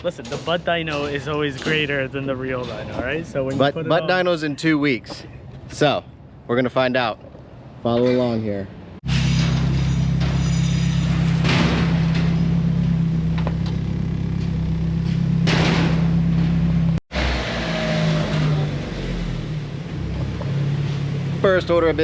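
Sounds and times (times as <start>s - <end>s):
car engine idling: 11.4s - 22.0s.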